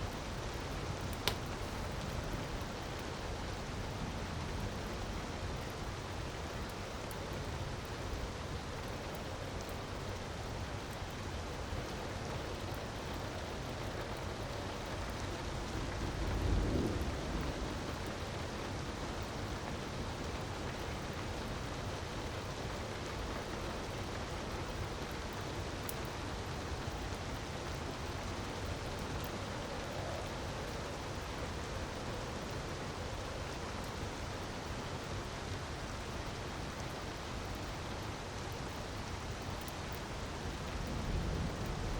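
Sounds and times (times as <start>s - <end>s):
wood fire crackling: 0.2s - 3.9s.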